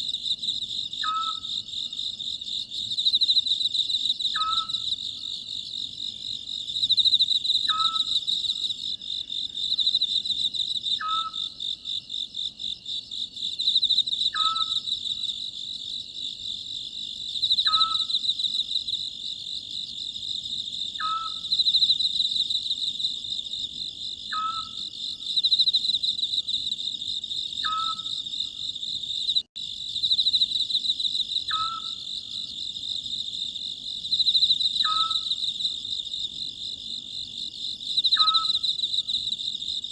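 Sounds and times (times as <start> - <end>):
crickets chirring: 0.0 - 39.9
owl calling: 1.0 - 1.5, 4.4 - 4.8, 7.7 - 8.1, 11.0 - 11.4, 14.3 - 14.8, 17.6 - 18.1, 21.0 - 21.5, 24.3 - 24.8, 27.6 - 28.2, 31.5 - 32.1, 34.8 - 35.3, 38.2 - 38.6.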